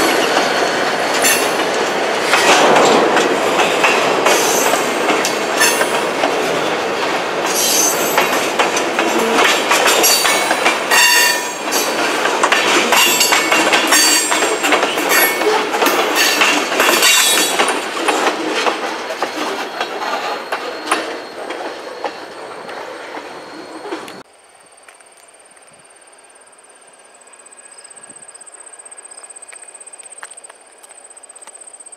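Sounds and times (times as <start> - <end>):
wheels clacking over rail joints: 0.0 - 24.3
high wheel squeals: 7.5 - 8.5, 9.1 - 12.0, 19.2 - 24.2.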